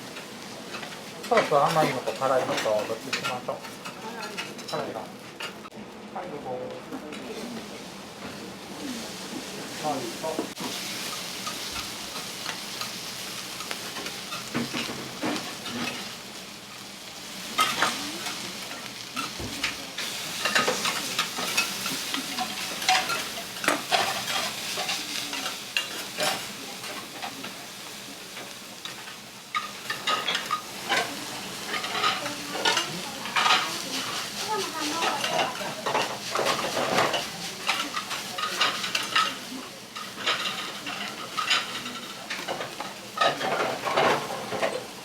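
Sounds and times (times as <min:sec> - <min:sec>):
food sizzling on a griddle: 0:00.0 - 0:45.0
metal spatulas scraping and clacking: 0:19.2 - 0:27.0, 0:40.0 - 0:44.8.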